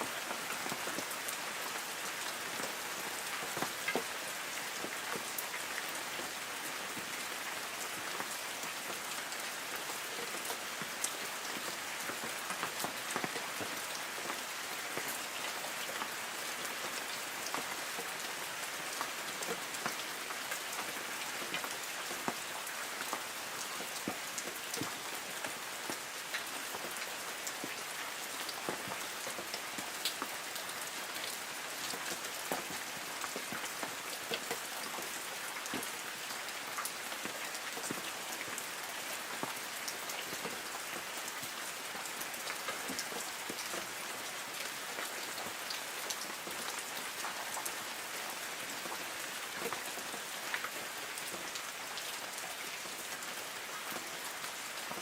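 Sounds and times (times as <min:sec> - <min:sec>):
light rain on leaves: 0:00.0 - 0:55.0.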